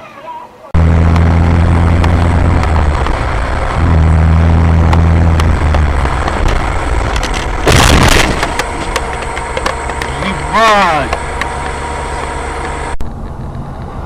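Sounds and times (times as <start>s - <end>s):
road noise: 0.0s - 14.0s
vehicle engine droning: 0.7s - 14.0s.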